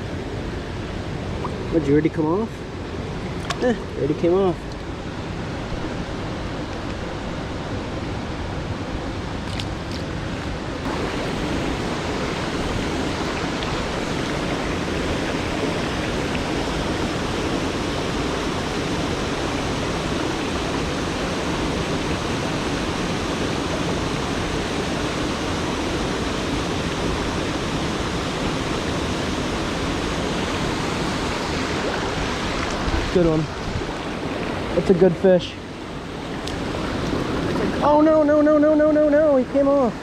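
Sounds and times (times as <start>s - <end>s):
creek rushing over rocks: 9.4s - 40.0s.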